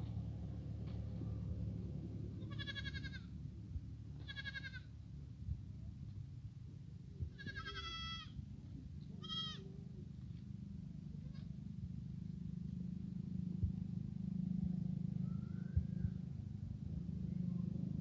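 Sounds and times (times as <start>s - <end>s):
low background rumble: 0.0s - 18.0s
goats bleating: 2.4s - 3.3s, 4.2s - 4.9s, 7.3s - 8.3s, 9.2s - 9.7s.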